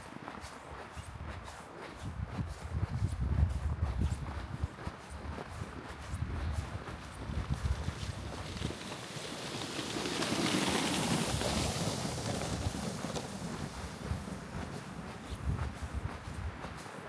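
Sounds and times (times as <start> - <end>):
footsteps crunching in snow: 4.5 - 17.0
wind gust rushing through trees: 7.3 - 16.6.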